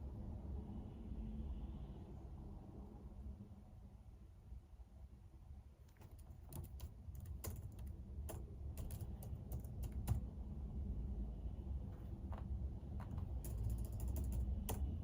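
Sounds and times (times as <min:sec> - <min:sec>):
computer keyboard typing: 0:05.9 - 0:10.3, 0:12.9 - 0:15.0.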